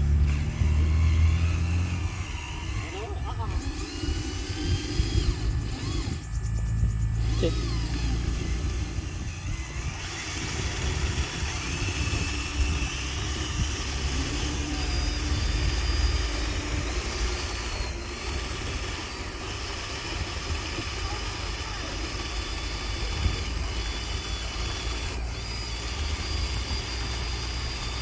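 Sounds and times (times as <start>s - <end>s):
low rumble: 0.0s - 17.0s
model truck motor whine: 0.0s - 28.0s.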